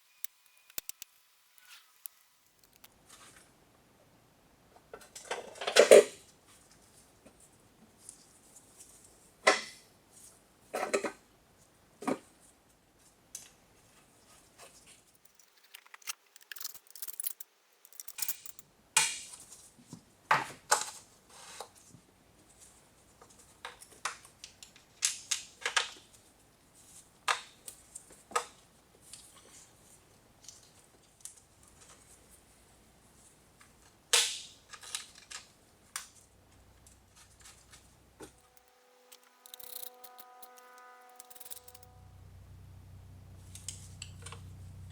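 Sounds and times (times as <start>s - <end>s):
metallic clicks of hand tools: 0.2s - 2.9s, 15.2s - 18.6s, 38.4s - 41.9s.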